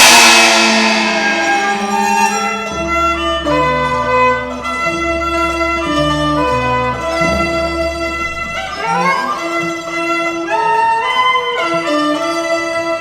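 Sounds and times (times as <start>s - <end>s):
cymbal crash: 0.0s - 5.0s
low sustained bass notes: 0.0s - 10.4s
bowed strings melody: 0.0s - 13.0s.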